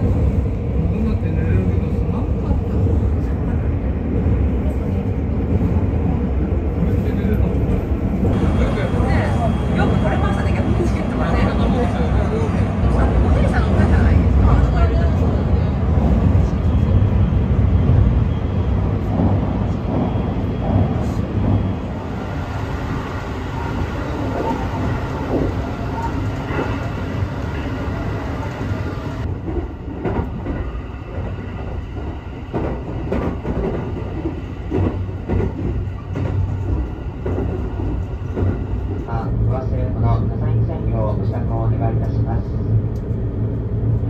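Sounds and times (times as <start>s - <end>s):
train wheels rumbling: 0.0s - 44.0s.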